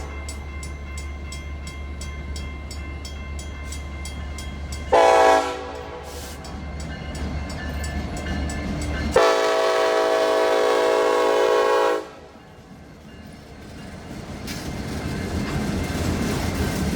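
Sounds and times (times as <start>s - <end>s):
passing train rumble: 0.0s - 16.9s
locomotive air horn blasts: 4.9s - 6.4s, 9.2s - 12.3s.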